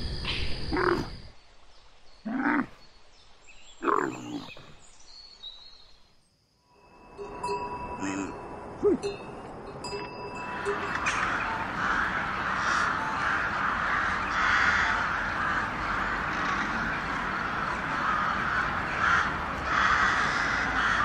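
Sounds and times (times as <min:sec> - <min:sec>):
flock of crows cawing: 0:10.4 - 0:21.0.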